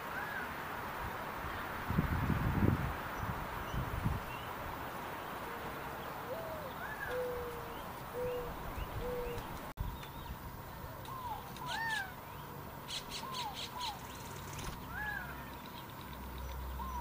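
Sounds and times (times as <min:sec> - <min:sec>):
birds whistling: 0:06.2 - 0:10.4, 0:11.0 - 0:17.0
harsh rasping bird call: 0:11.1 - 0:12.2, 0:14.8 - 0:15.6.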